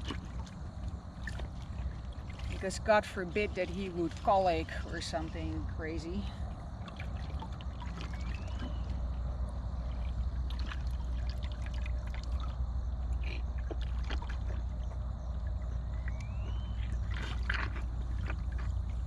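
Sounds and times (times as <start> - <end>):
water splashing and trickling: 0.0 - 19.0
wind rumble on microphone: 0.0 - 19.0.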